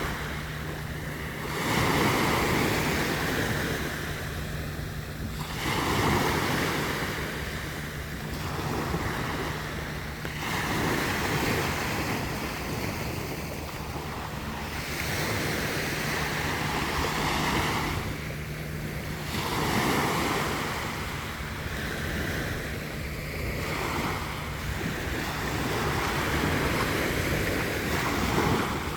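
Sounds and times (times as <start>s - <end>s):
sea waves breaking on beach: 0.0s - 28.9s
wind buffeting microphone: 0.0s - 28.9s.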